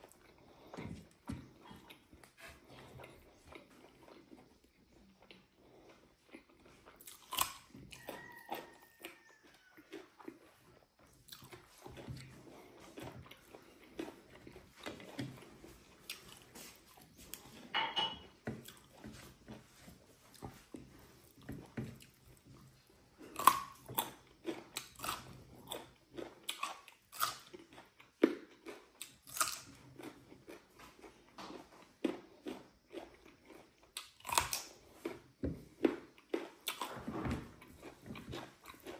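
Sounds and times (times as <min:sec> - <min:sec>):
person chewing food: 0:00.0 - 0:38.9
crunchy bites: 0:23.3 - 0:38.9.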